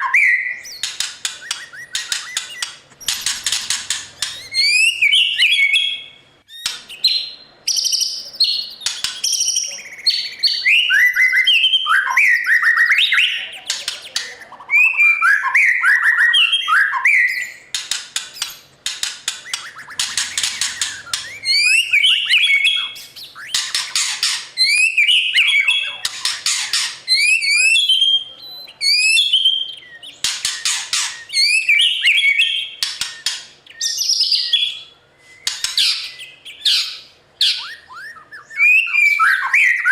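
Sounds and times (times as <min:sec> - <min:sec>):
bird singing whistled phrases: 0:00.0 - 0:02.7, 0:04.2 - 0:17.7, 0:19.4 - 0:26.3, 0:27.1 - 0:39.9
bird rasping chatter: 0:00.7 - 0:05.0, 0:17.7 - 0:25.0, 0:25.6 - 0:27.8, 0:29.8 - 0:31.7.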